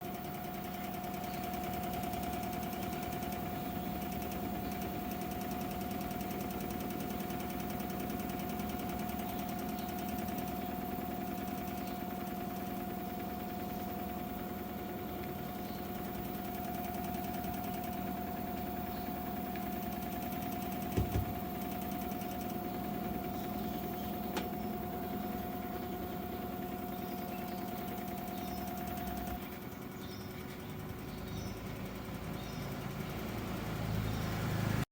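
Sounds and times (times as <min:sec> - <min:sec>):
washing machine spinning with whine: 0:00.0 - 0:34.9
short knocks: 0:20.9 - 0:21.4.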